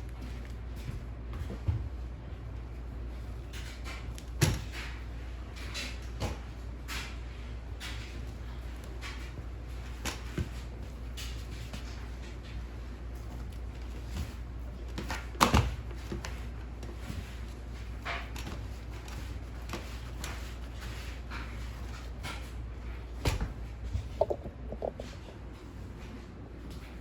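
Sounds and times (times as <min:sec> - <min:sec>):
low steady hum: 0:15.8 - 0:27.0
objects knocking and clattering: 0:23.9 - 0:25.6.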